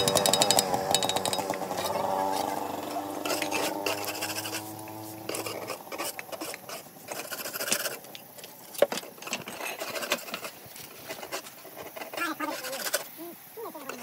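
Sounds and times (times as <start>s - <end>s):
steady hum: 0.0s - 8.7s
trowel and stone clicks and scrapes: 3.2s - 13.1s.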